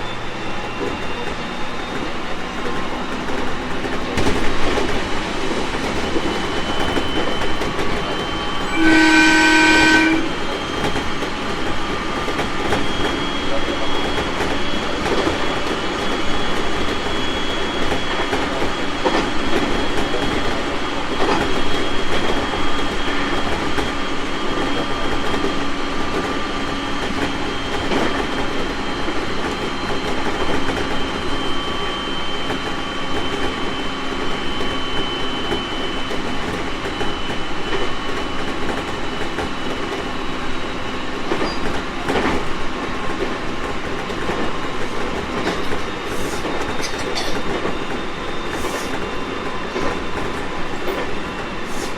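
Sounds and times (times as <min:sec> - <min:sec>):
electric train rumbling: 0:00.0 - 0:51.9
train motor whine: 0:00.0 - 0:51.9
wheels clacking over rail joints: 0:32.5 - 0:51.9.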